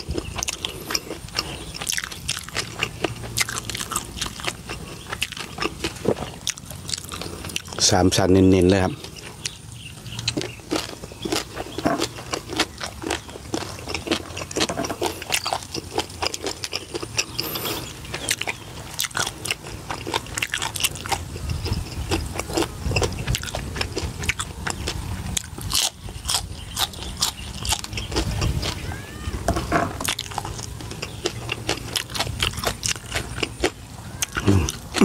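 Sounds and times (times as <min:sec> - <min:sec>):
crunchy bites and chewing: 0:00.0 - 0:35.0
wet mouth noises: 0:08.8 - 0:28.8, 0:30.0 - 0:35.0.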